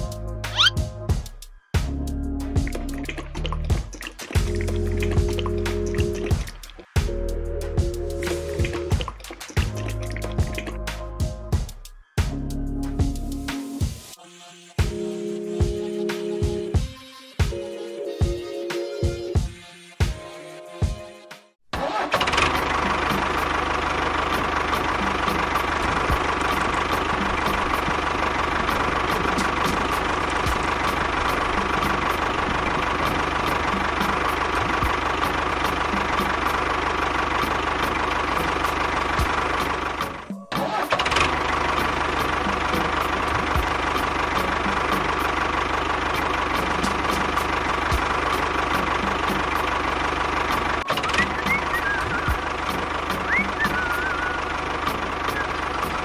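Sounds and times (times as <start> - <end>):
small engine running: 21.8 - 56.0.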